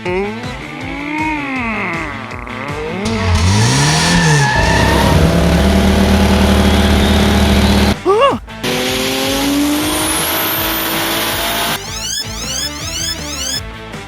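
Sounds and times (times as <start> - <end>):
vehicle engine revving and droning: 3.1 - 8.0, 8.7 - 13.6.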